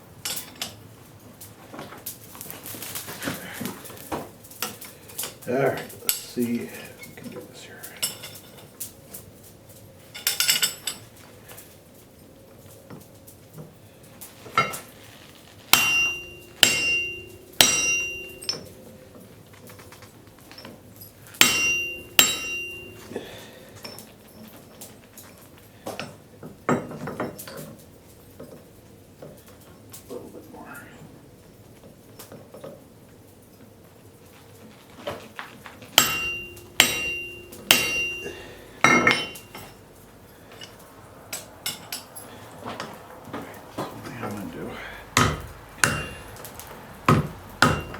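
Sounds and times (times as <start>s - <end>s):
hammer striking metal on anvil: 15.7s - 18.7s, 21.4s - 23.2s, 36.0s - 39.8s, 45.2s - 47.9s.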